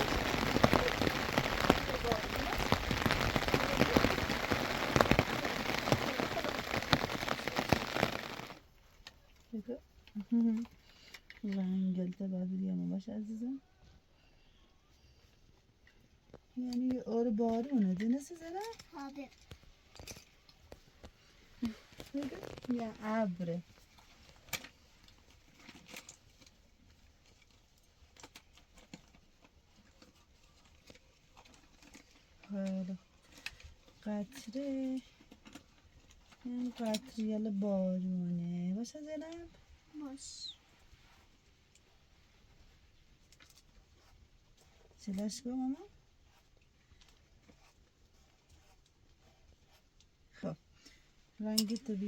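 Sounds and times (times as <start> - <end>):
heavy rain on a surface: 0.0 - 8.6, 21.6 - 23.3.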